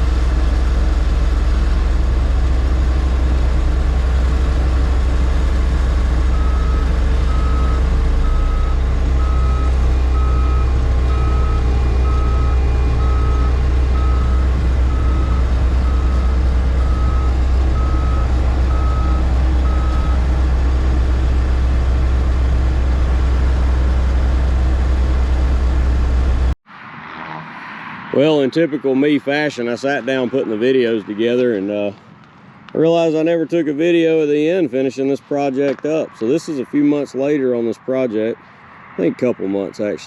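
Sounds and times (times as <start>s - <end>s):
heavy engine running: 0.0s - 26.6s
reversing alarm beeping: 2.7s - 23.6s.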